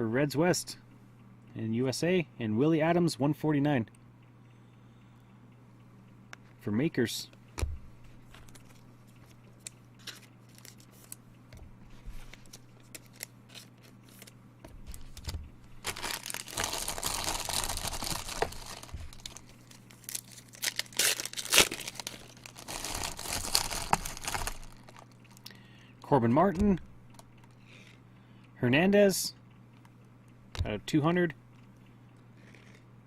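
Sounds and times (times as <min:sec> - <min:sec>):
faint steady hum: 0:00.0 - 0:33.0
wrapper tearing and crinkling: 0:12.4 - 0:14.3, 0:14.9 - 0:25.1.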